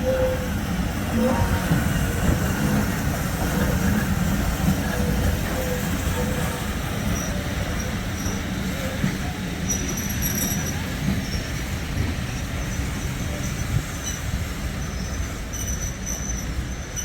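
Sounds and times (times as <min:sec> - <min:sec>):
train wheels rumbling on rails: 0:00.0 - 0:17.0
faint wheel squeal: 0:04.9 - 0:11.5.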